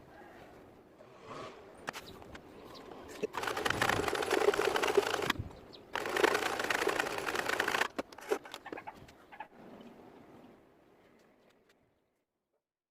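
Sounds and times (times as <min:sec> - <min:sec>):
sewing machine stitching clatter: 0:03.3 - 0:05.4, 0:06.0 - 0:08.4.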